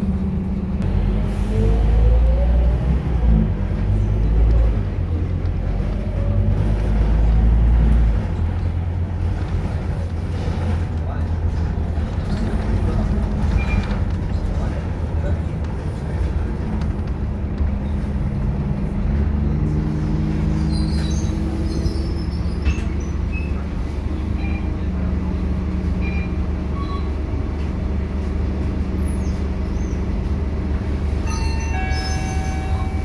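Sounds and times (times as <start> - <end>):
bus diesel engine rumbling: 0.0 - 33.0
high chime tones: 31.3 - 33.0.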